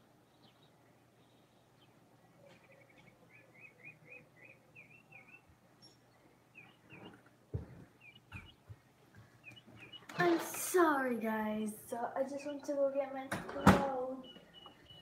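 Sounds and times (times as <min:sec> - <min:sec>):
faint bird chirping: 0:00.0 - 0:10.6, 0:11.7 - 0:15.0
dull thumps: 0:07.5 - 0:09.4.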